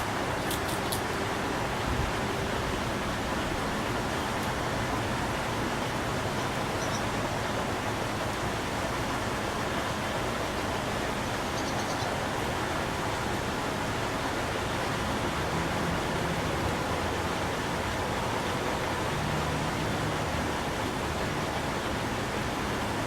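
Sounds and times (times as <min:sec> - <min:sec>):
steady rushing noise: 0:00.0 - 0:23.0
faint high bird chirps: 0:06.8 - 0:07.1, 0:11.4 - 0:12.1.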